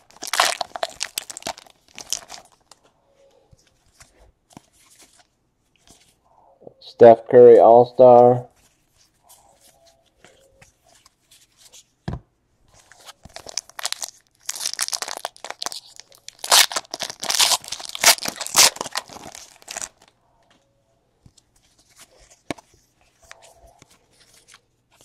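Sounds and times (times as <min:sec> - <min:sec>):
wrappers tearing and crinkling: 0:00.0 - 0:02.8, 0:13.3 - 0:20.1.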